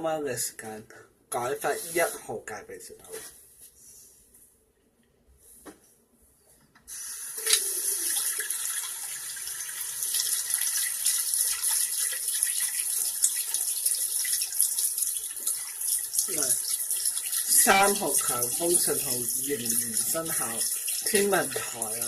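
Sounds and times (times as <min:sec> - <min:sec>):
running water gushing: 0:07.0 - 0:22.0.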